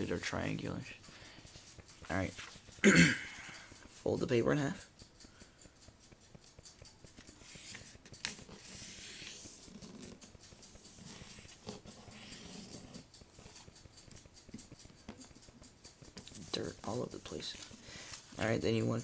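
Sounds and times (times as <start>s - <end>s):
paper crinkle: 7.0s - 13.7s, 16.2s - 19.0s
paper rustling and sliding: 7.4s - 10.2s, 16.2s - 18.6s.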